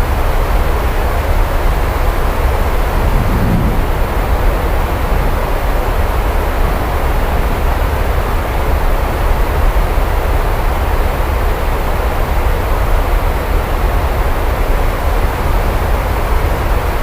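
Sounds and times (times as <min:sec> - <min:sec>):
deep rumble: 0:02.4 - 0:06.3
heavy rain: 0:02.6 - 0:07.6.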